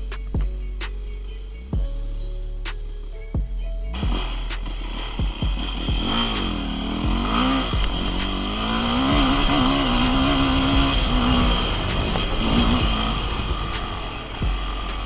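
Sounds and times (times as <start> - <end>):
dirt bike engine revving: 3.9 - 15.0.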